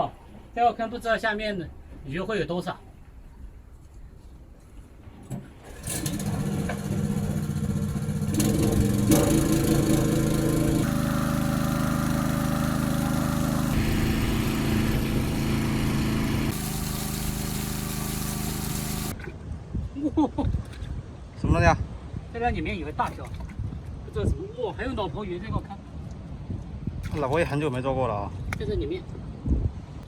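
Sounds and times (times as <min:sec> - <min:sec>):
small petrol engine running: 0:05.7 - 0:19.1.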